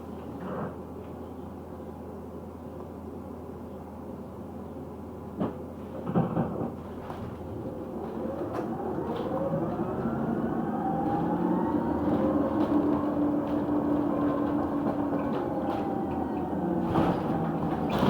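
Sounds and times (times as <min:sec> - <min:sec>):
electric bus motor whine: 0:06.8 - 0:18.0.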